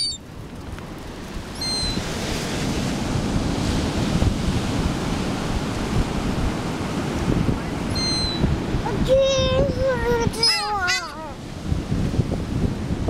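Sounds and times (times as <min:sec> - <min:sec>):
high-pitched call: 0:00.0 - 0:00.2, 0:07.9 - 0:08.4, 0:10.4 - 0:11.3
wind buffeting microphone: 0:00.0 - 0:13.0
ocean surf washing ashore: 0:00.2 - 0:13.0.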